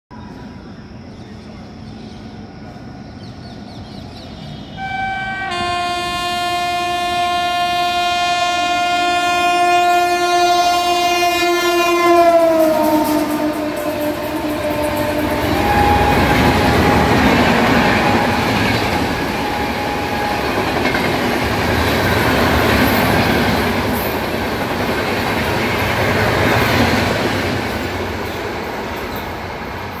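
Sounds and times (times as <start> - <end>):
locomotive horn blast: 4.8 - 20.8
train wheels rumbling and clattering: 12.3 - 30.0.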